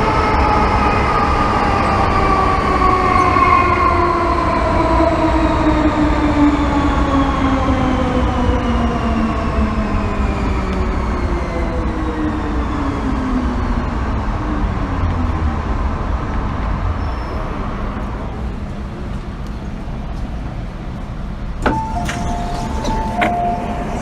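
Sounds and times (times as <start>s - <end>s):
wheel-and-rail rumble: 0.0s - 24.0s
train traction motors whining: 20.9s - 24.0s.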